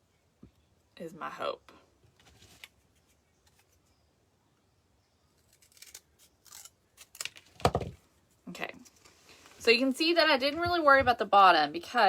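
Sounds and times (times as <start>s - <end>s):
scissors snipping: 5.4s - 7.4s
object thumping on a table: 7.6s - 8.0s.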